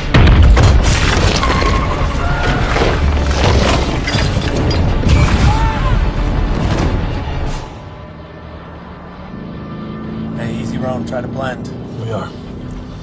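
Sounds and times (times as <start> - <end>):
booms and crashing impacts: 0.0 - 7.7
film music score: 0.0 - 10.2.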